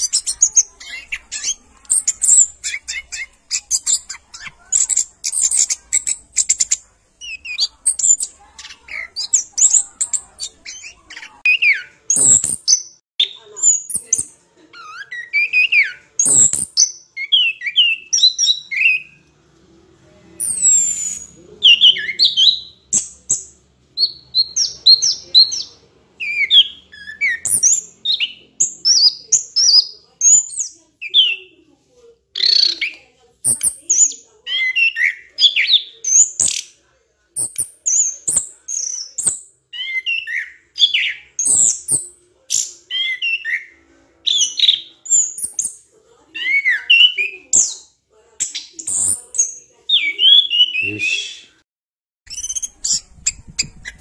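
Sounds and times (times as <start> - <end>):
bird chirping and whistling: 14.8 - 19.2, 20.4 - 23.4, 24.0 - 31.4, 37.4 - 43.7, 48.6 - 51.5, 52.3 - 54.0.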